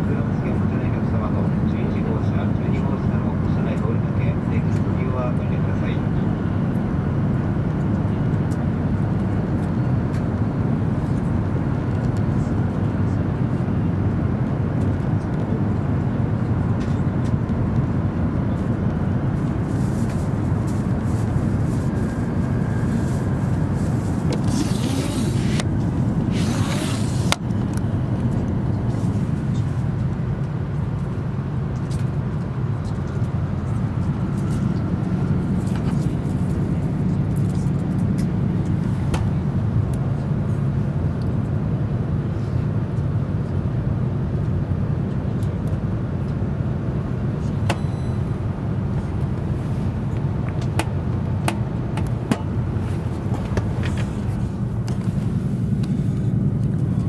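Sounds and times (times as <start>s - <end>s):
train cabin rumble: 47.4s - 57.0s.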